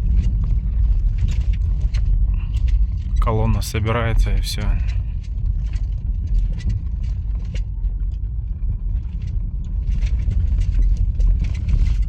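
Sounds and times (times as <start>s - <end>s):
road and tyre rumble: 0.0s - 12.0s.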